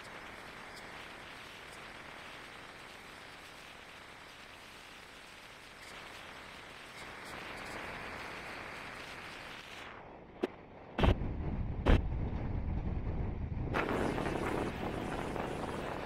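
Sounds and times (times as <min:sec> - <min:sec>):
moving train running noise: 0:05.4 - 0:16.0
wind buffeting microphone: 0:11.0 - 0:16.0.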